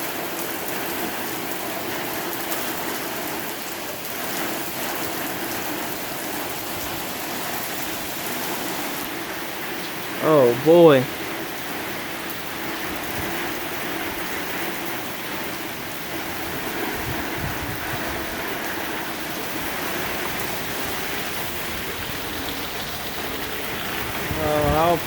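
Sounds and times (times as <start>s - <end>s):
heavy rain pouring: 0.0s - 25.0s
strong gusting wind: 11.1s - 25.0s.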